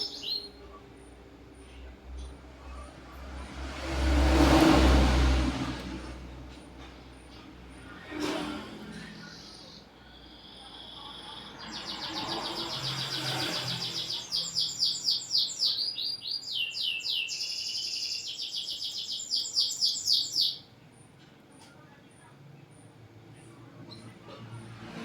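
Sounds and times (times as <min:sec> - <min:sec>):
canary singing: 0:00.0 - 0:00.8, 0:09.2 - 0:20.7.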